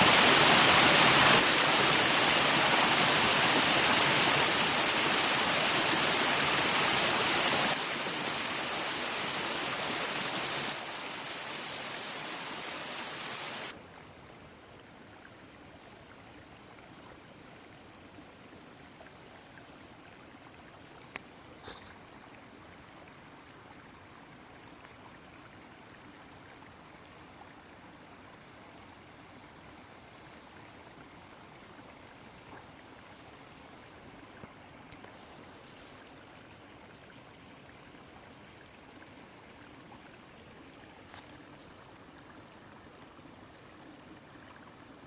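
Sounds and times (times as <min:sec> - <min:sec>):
running water rushing: 0:00.0 - 0:13.9
small clicks: 0:20.8 - 0:21.9.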